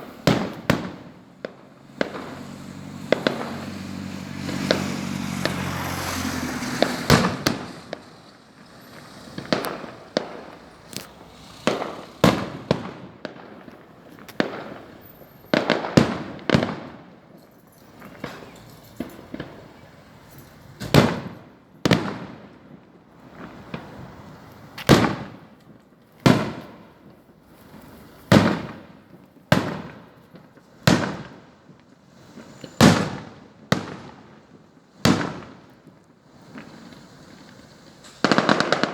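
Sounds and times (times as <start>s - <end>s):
crackling hiss: 0.0s - 17.0s, 26.6s - 33.3s, 34.2s - 38.9s
firework shell bursts: 0.0s - 22.5s, 32.2s - 38.9s.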